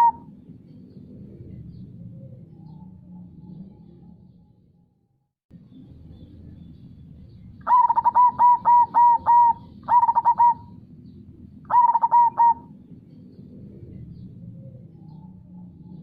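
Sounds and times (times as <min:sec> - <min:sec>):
dove cooing: 0:00.0 - 0:00.4, 0:07.6 - 0:10.8, 0:11.7 - 0:16.0.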